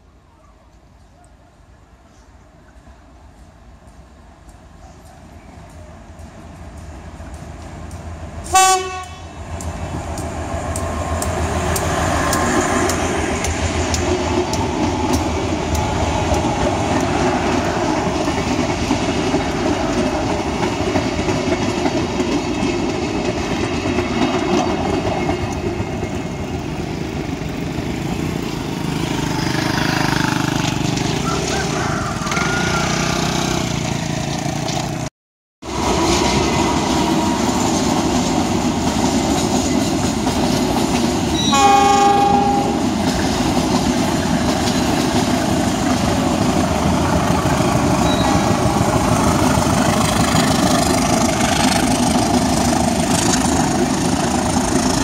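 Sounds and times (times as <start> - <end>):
train wheels rumbling and clattering: 3.2 - 55.0
train horn blast: 8.5 - 9.4, 41.4 - 43.0.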